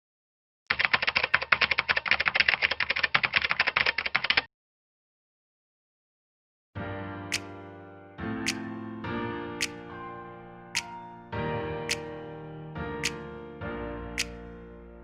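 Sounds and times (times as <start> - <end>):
computer keyboard typing: 0.7 - 4.5.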